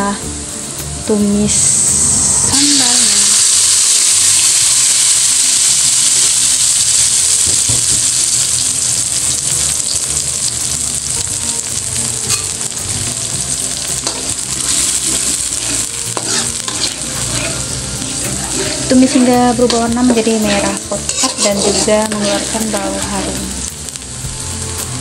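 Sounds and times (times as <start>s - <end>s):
paste sizzling in hot oil: 0.5s - 25.0s
spatula scraping through paste: 20.4s - 22.4s.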